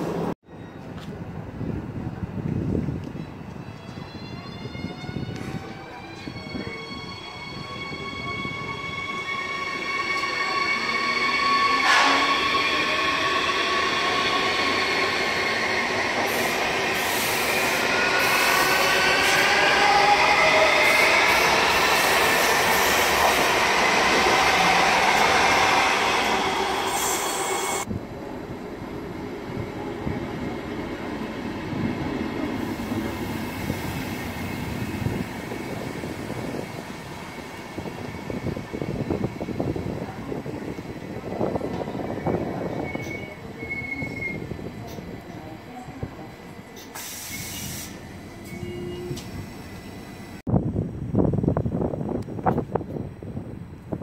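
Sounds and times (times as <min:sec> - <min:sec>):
train coaches rumbling past: 0:00.0 - 0:50.4
electric train whining: 0:03.8 - 0:50.4.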